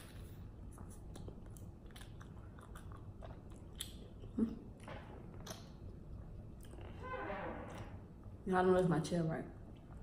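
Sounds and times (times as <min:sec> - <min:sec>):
wet chewing with clicks: 0:00.6 - 0:06.9.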